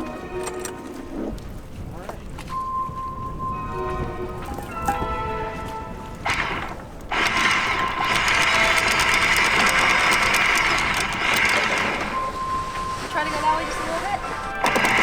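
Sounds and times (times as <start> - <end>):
machine clicking rapidly: 6.2 - 12.9, 13.9 - 15.0.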